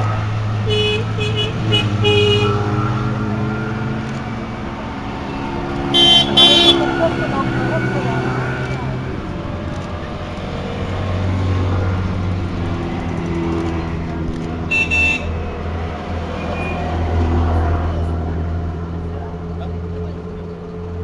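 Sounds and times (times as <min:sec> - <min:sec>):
small cars driving past: 0:00.0 - 0:21.0
short horn toot: 0:06.0 - 0:06.9.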